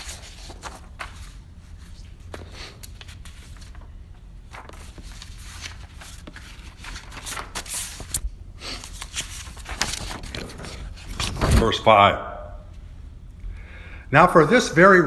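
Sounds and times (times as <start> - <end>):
book pages turning: 0.0 - 12.1.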